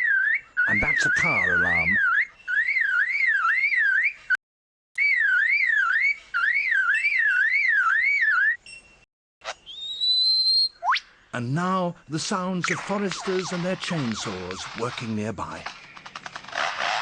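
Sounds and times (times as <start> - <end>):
lyrebird mimicking car alarm: 0.0 - 4.2, 12.6 - 15.1.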